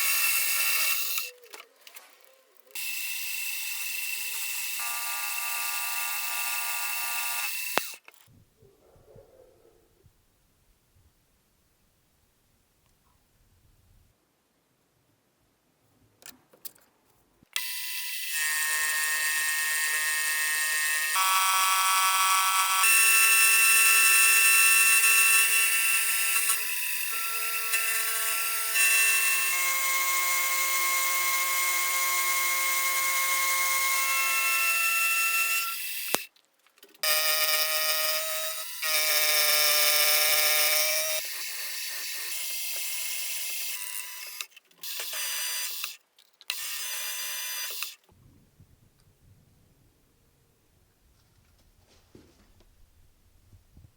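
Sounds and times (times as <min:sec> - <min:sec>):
machine tool high-pitched whine: 0:00.0 - 0:01.4, 0:02.7 - 0:08.0, 0:17.6 - 0:36.2, 0:37.0 - 0:48.0.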